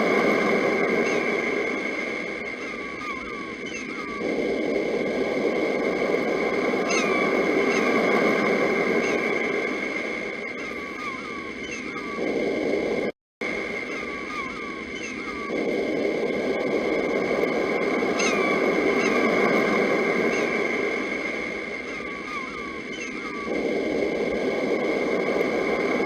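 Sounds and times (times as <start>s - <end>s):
bird chirping: 13.7s - 15.6s, 21.8s - 23.6s.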